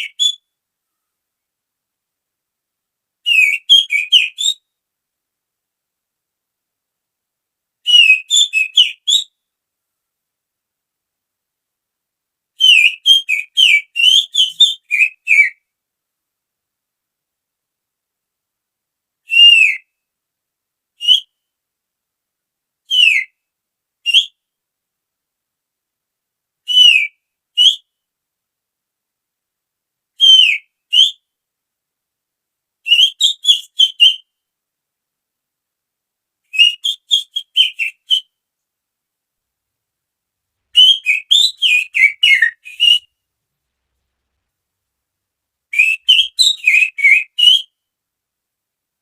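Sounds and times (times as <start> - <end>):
finger whistling bird call: 0.0 - 0.4, 3.3 - 4.6, 7.9 - 9.4, 12.6 - 15.6, 19.3 - 19.9, 21.0 - 21.4, 22.9 - 23.3, 24.1 - 24.4, 26.7 - 27.9, 30.2 - 31.2, 32.9 - 34.3, 36.5 - 38.3, 40.8 - 43.1, 45.7 - 47.8.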